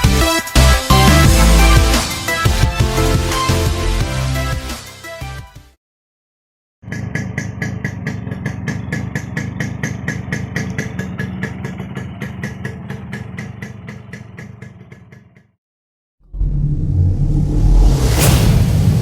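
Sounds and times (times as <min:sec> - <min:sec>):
two-stroke motorcycle engine idling: 0:06.8 - 0:15.6.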